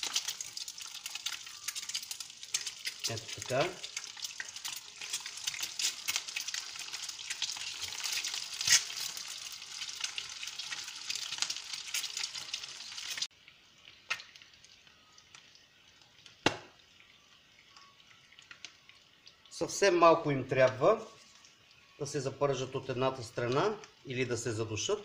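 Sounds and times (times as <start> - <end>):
eggs sizzling in hot oil: 0.0 - 25.0
crackling oil pops: 16.3 - 16.8.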